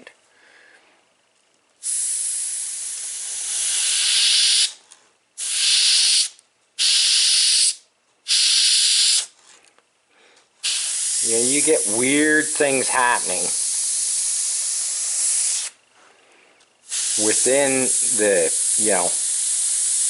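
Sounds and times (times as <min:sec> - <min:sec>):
airbrush spraying hiss: 0:01.8 - 0:04.8, 0:05.4 - 0:09.3, 0:10.6 - 0:15.8, 0:16.8 - 0:20.0.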